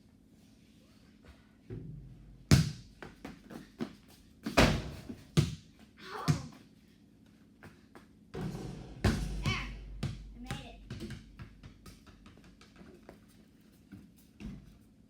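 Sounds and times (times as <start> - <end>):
ball bouncing: 8.4 - 13.3.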